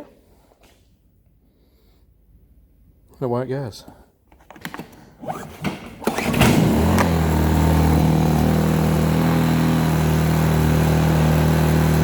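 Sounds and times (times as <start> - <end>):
generator engine running: 5.3 - 12.0.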